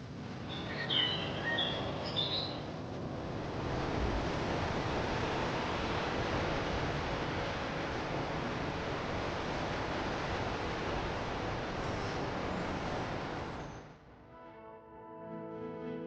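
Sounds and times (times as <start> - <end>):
steady rushing noise: 0.0 - 14.0
small birds chirping: 0.5 - 2.6.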